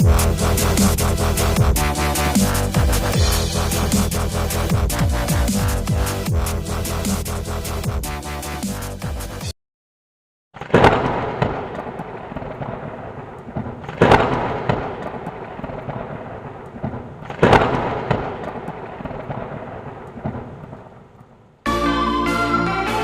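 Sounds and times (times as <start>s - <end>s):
thunder cracks rumbling: 0.0s - 6.5s, 10.6s - 21.2s
rain hissing: 0.0s - 7.6s.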